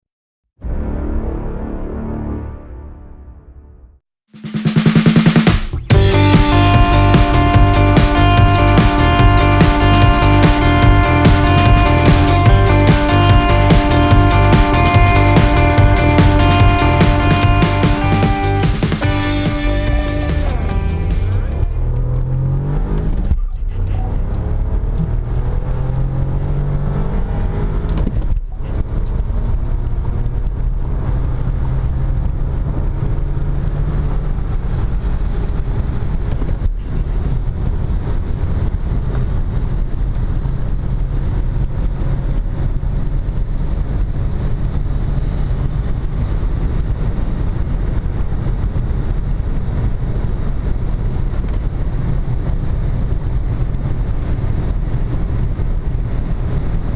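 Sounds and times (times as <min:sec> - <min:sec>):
road and wind noise: 0:20.0 - 0:56.9.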